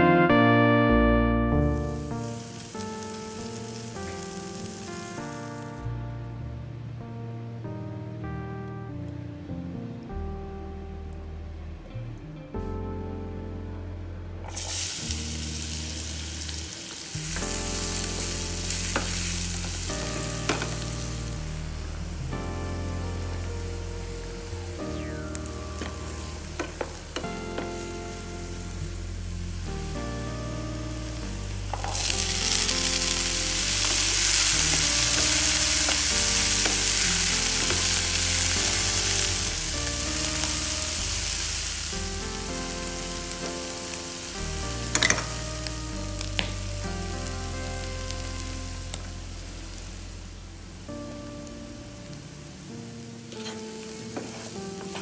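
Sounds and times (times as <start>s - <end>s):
background music: 0.0s - 55.0s
food sizzling in oil: 2.0s - 4.9s, 14.5s - 21.3s, 31.8s - 45.4s.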